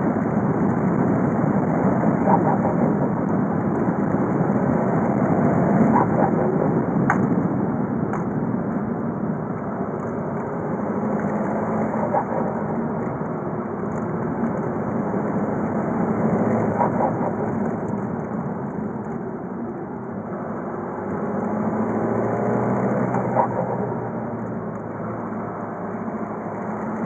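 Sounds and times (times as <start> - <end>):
diesel car engine running: 0.0 - 27.0.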